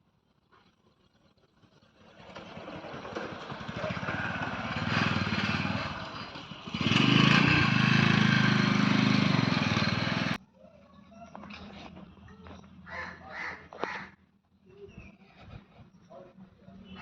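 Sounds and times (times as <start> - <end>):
motor engine running: 1.0 - 10.4.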